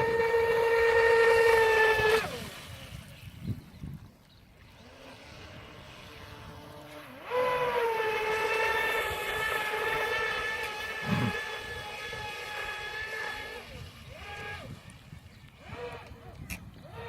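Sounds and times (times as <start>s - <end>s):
model boat motor whine: 0.0s - 17.0s.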